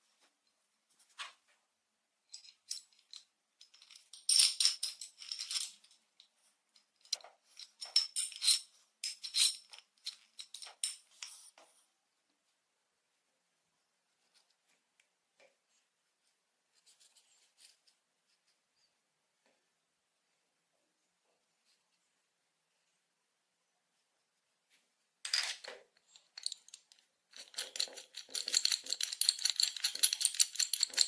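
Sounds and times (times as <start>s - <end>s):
small hard objects rattling: 25.3s - 31.0s.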